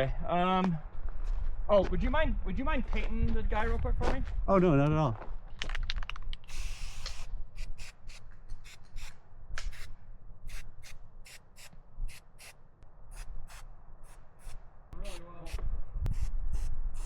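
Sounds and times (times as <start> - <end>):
low wind rumble: 0.0 - 17.0
spray can hissing bursts: 6.5 - 9.1, 10.5 - 12.6, 13.2 - 17.0.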